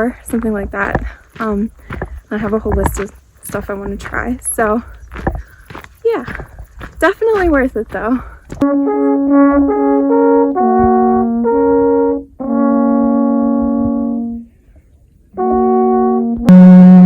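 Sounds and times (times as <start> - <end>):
alphorns playing: 8.6 - 14.5, 15.4 - 17.0.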